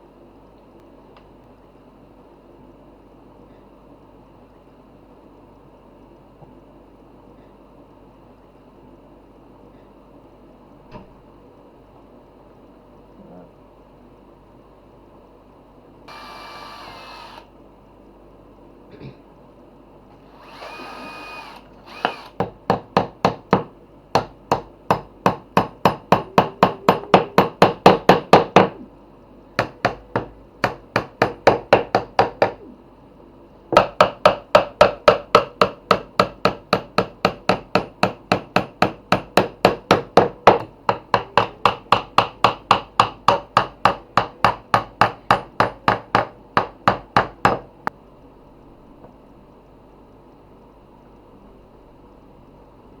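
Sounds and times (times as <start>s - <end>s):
hammer striking wood: 21.9s - 28.8s, 29.6s - 32.6s, 33.7s - 47.7s.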